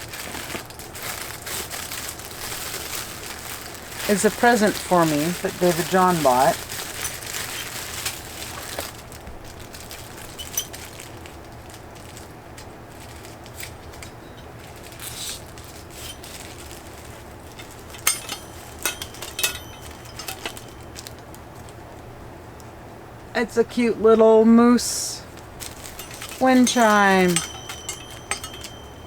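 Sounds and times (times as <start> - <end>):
packaging rustling and crinkling: 0.0 - 21.7
steady low hum: 17.5 - 21.0
wind chimes ringing: 17.9 - 21.1, 25.7 - 29.0.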